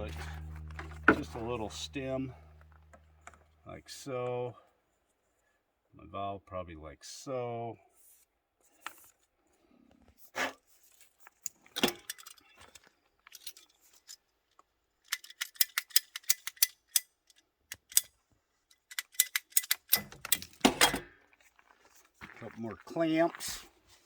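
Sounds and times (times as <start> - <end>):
sharp metallic clicks and clinks: 18.8 - 20.6.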